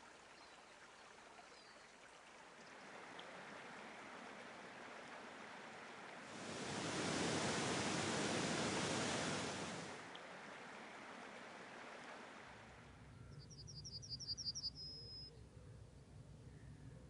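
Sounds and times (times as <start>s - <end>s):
rushing water: 0.0s - 12.9s.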